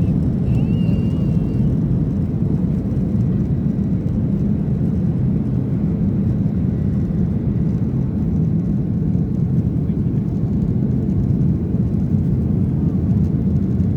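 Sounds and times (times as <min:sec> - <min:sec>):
faint thin whistle: 0:00.0 - 0:01.7
aircraft cabin engine rumble: 0:00.0 - 0:13.9.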